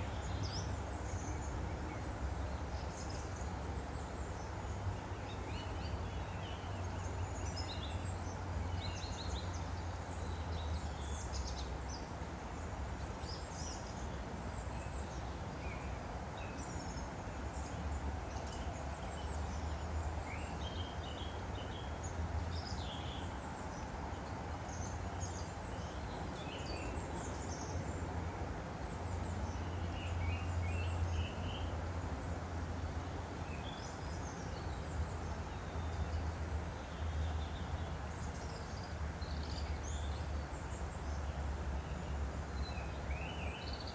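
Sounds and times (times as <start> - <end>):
small birds chirping: 0.0 - 43.9
stream flowing: 0.0 - 43.9.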